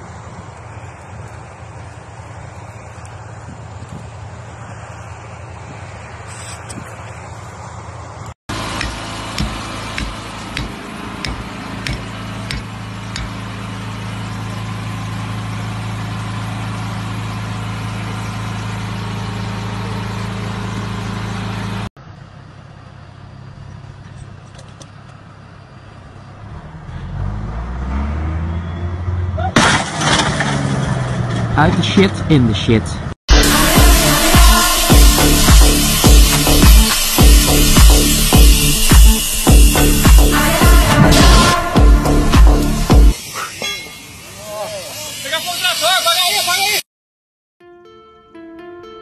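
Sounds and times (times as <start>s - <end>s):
quieter engine rising in pitch: 0.0s - 23.9s, 26.0s - 29.5s, 33.3s - 43.5s
vehicle engine running: 0.0s - 27.9s, 31.6s - 43.3s
sharp knocks: 8.8s - 13.4s.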